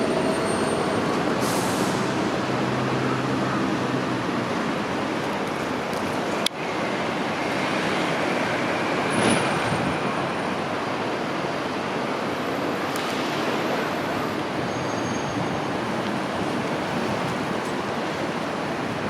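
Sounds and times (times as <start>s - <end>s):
buses and streetcars passing: 0.0s - 19.0s
city traffic noise: 0.0s - 19.0s
short high squeal: 14.6s - 15.5s.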